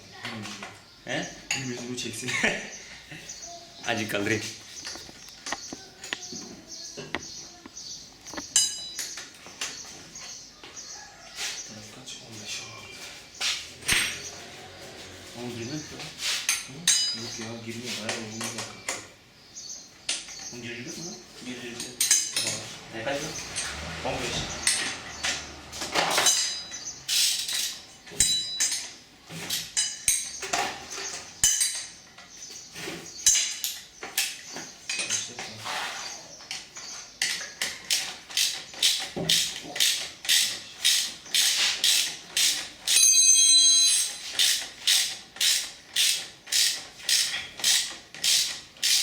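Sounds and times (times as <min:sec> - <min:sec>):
metal tools clinking: 0:08.3 - 0:09.4, 0:13.8 - 0:14.4, 0:16.4 - 0:17.6, 0:21.7 - 0:22.8, 0:23.4 - 0:29.0, 0:29.6 - 0:32.2, 0:33.2 - 0:33.9, 0:34.8 - 0:35.5, 0:39.8 - 0:49.0
ratchet wrench clicking: 0:37.9 - 0:43.2, 0:44.0 - 0:49.0.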